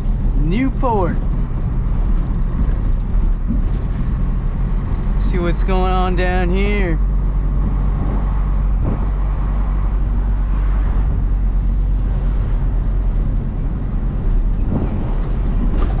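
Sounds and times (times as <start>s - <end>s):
diesel truck engine running: 0.0s - 16.0s
road and tyre noise: 0.0s - 16.0s.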